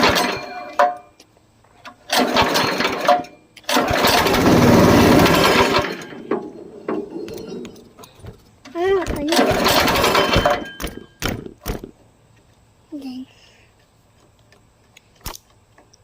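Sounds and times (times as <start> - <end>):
small engine pull-starting: 2.1 - 6.2
engine sputtering: 3.7 - 6.2.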